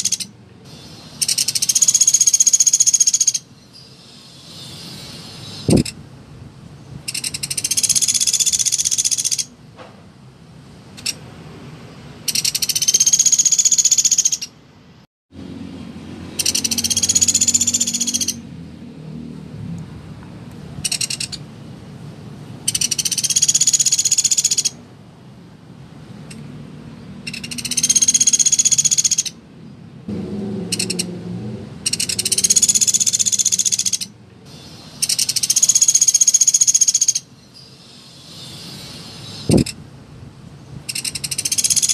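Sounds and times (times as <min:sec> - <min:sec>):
woodpecker rattling trills: 0:00.0 - 0:03.5, 0:07.1 - 0:09.5, 0:12.3 - 0:14.5, 0:16.3 - 0:18.4, 0:20.8 - 0:21.4, 0:22.6 - 0:24.8, 0:27.2 - 0:29.4, 0:30.7 - 0:31.1, 0:31.8 - 0:39.8, 0:40.9 - 0:41.9.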